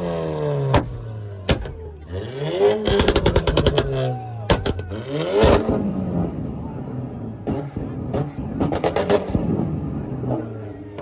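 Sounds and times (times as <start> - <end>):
car engine revving: 0.0 - 11.0
exhaust pops and bangs: 0.7 - 1.9, 2.7 - 6.0.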